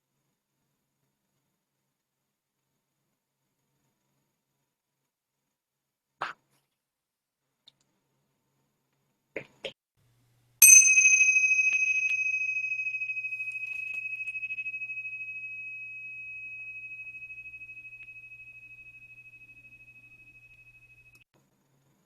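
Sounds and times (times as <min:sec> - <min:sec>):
meditation bell ringing: 0:10.6 - 0:21.2.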